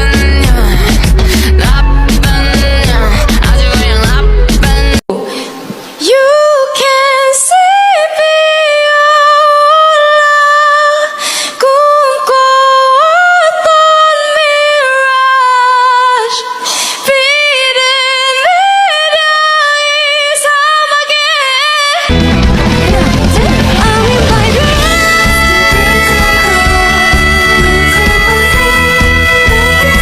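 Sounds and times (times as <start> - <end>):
backing track with bass line: 0.0 - 5.0, 22.1 - 30.0
woman singing unaccompanied: 0.0 - 5.3, 6.0 - 22.1, 22.8 - 30.0.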